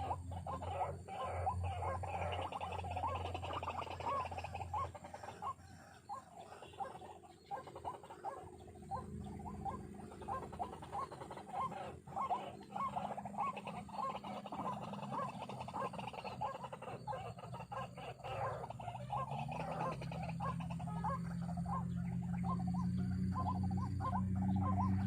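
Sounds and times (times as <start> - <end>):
waterhen croaking calls: 0.0 - 25.0.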